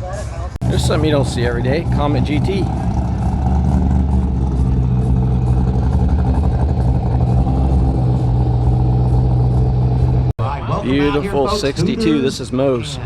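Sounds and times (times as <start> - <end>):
car engine idling: 0.6 - 10.4.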